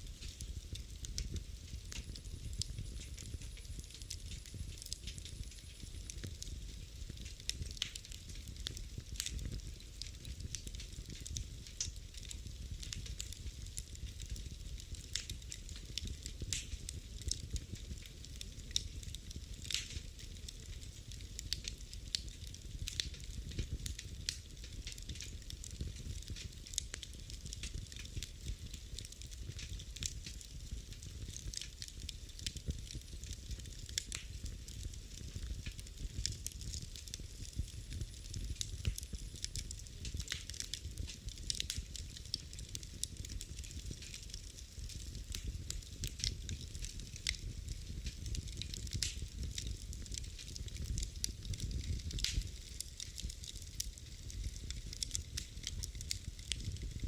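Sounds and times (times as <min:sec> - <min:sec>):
fireplace fire crackling: 0:00.0 - 0:57.0.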